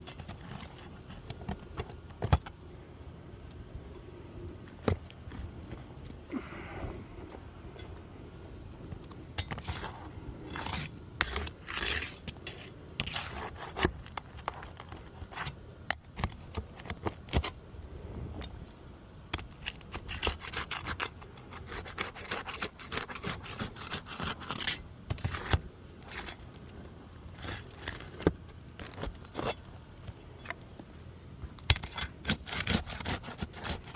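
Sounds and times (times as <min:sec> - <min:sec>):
hand tool scraping roofing: 0:09.4 - 0:15.6, 0:19.5 - 0:26.4, 0:27.3 - 0:29.7, 0:31.5 - 0:33.9.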